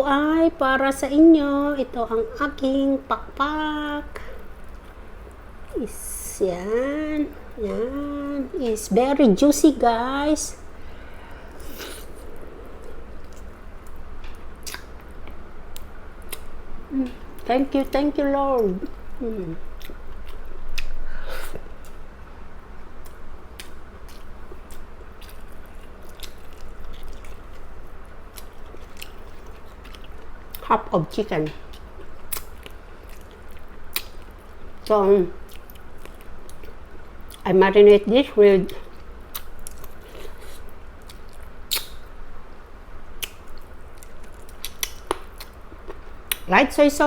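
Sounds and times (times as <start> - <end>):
low steady hum: 0.0 - 47.0
person chewing food: 10.7 - 16.6, 19.7 - 22.0, 23.0 - 30.6, 31.6 - 37.4, 38.7 - 41.9, 43.2 - 46.4
lip-smacking clicks: 41.0 - 42.0
mouth clicks: 41.7 - 42.0.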